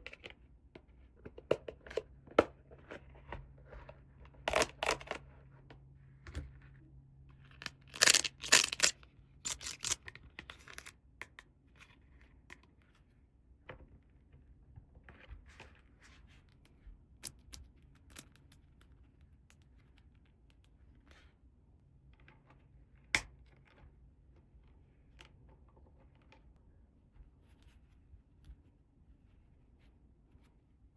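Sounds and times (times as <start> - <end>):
toy packaging tearing: 7.6 - 10.0
plastic toy pieces clicking: 7.7 - 10.0.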